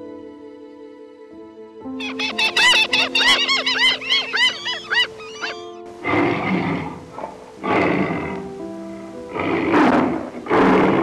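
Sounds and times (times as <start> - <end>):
soft piano music: 0.0 - 11.0
bird chirps: 2.0 - 5.9
tiger growling: 5.9 - 11.0.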